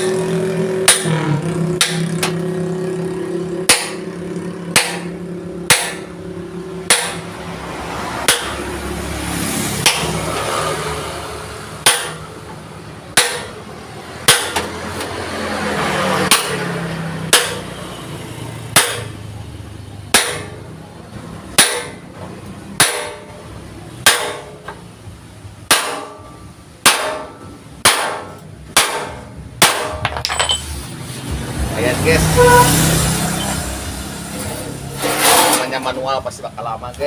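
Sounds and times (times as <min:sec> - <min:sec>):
hammer striking steel plate: 0:00.8 - 0:02.5, 0:03.6 - 0:06.2, 0:06.8 - 0:07.4, 0:08.2 - 0:08.6, 0:09.8 - 0:10.2, 0:11.8 - 0:12.3, 0:13.1 - 0:13.6, 0:14.2 - 0:14.8, 0:16.3 - 0:16.6, 0:17.3 - 0:17.7, 0:18.7 - 0:19.2, 0:20.1 - 0:20.6, 0:21.6 - 0:22.0, 0:22.8 - 0:24.8, 0:25.6 - 0:30.8.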